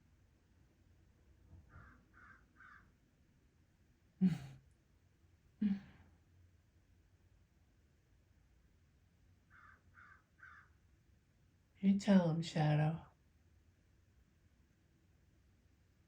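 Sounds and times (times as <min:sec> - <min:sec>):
faint quick bird calls: 0:01.7 - 0:02.9, 0:09.5 - 0:10.7.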